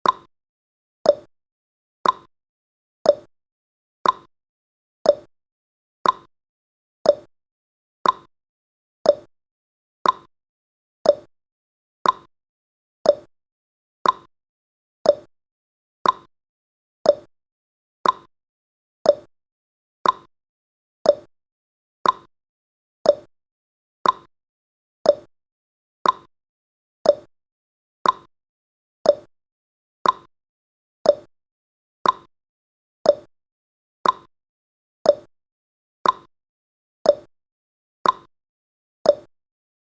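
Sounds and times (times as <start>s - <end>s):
clock ticking: 2.0s - 2.3s, 6.0s - 6.3s, 8.0s - 8.3s, 10.0s - 10.3s, 12.0s - 12.3s, 14.0s - 14.3s, 15.1s - 15.3s, 16.0s - 16.3s, 18.0s - 18.3s, 20.0s - 20.3s, 21.1s - 21.3s, 22.0s - 22.3s, 24.0s - 24.3s, 25.1s - 25.3s, 26.0s - 26.3s, 27.1s - 27.3s, 28.0s - 28.3s, 29.1s - 29.3s, 30.0s - 30.3s, 31.1s - 31.3s, 32.0s - 32.3s, 34.0s - 34.3s, 36.0s - 36.3s, 38.0s - 38.3s.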